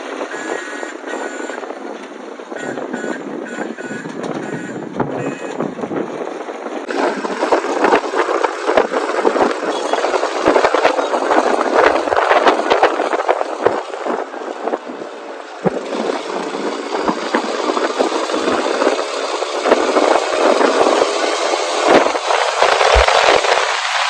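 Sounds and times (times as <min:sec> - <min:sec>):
motorcycle engine rattly running: 0:06.8 - 0:24.0.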